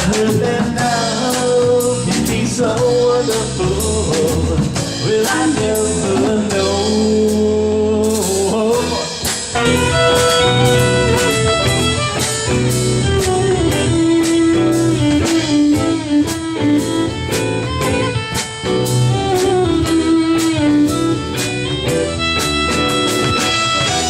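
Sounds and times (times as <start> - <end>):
bass guitar: 0.0 - 24.0
drum beat: 8.8 - 24.0
electric guitar lead: 9.0 - 24.0.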